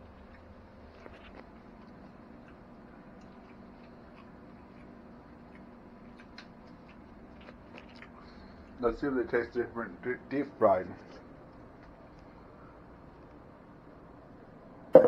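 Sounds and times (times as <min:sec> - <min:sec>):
faint chewing clicks: 0:00.0 - 0:08.8, 0:10.8 - 0:13.5
steady low hum: 0:00.0 - 0:15.0.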